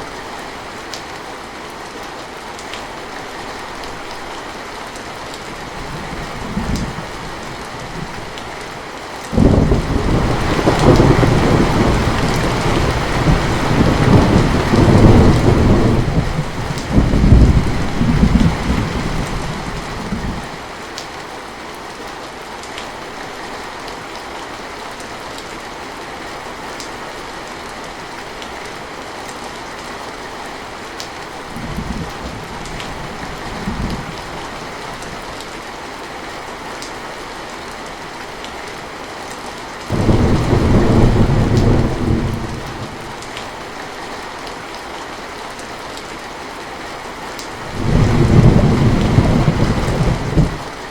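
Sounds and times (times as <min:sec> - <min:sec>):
heavy rain falling: 0:00.0 - 0:50.9
thunder rumbling: 0:09.4 - 0:20.6, 0:39.9 - 0:43.2, 0:47.6 - 0:50.8.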